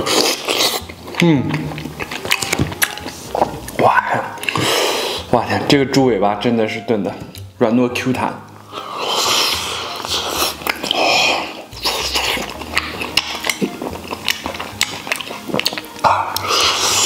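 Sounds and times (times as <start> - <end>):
man chewing wet smacking: 0.0 - 5.3, 8.9 - 17.0.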